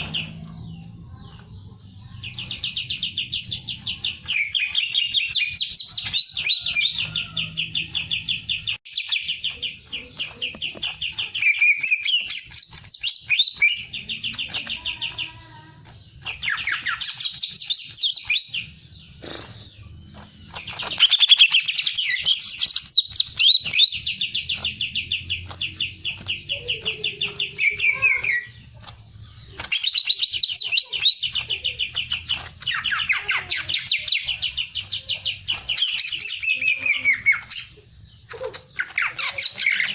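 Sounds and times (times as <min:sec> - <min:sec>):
songbird trilling: 0:16.2 - 0:28.6.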